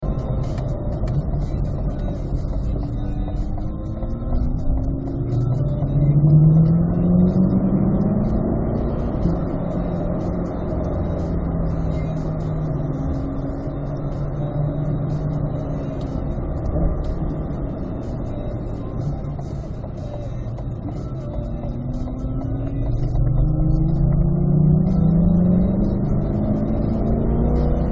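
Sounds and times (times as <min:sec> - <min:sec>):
car engine revving from inside: 0:04.5 - 0:18.0, 0:21.6 - 0:27.9.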